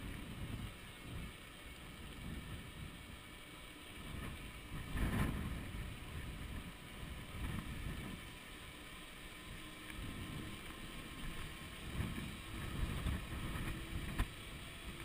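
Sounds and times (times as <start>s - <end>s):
wind buffeting microphone: 0.0s - 8.8s, 9.4s - 15.0s.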